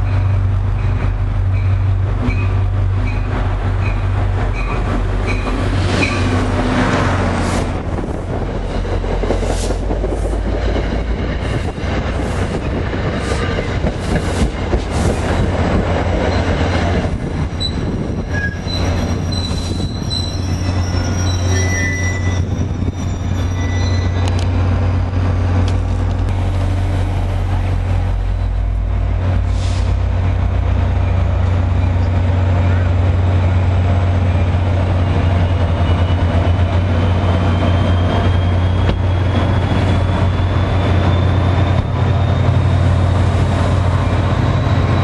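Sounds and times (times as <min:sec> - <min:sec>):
train passing rumble: 0:00.0 - 0:45.0
high-pitched wheel squeals: 0:17.5 - 0:24.4, 0:37.3 - 0:43.0.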